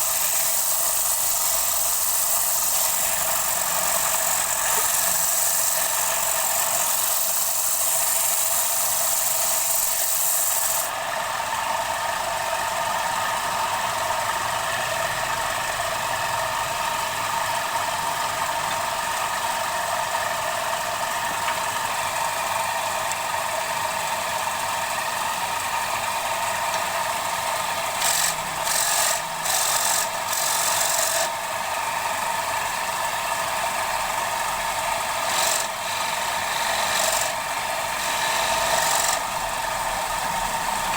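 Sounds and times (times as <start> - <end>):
tool scraping spinning wood: 0.0 - 11.0, 25.8 - 31.6, 35.0 - 40.9
wood lathe hum: 0.0 - 40.9.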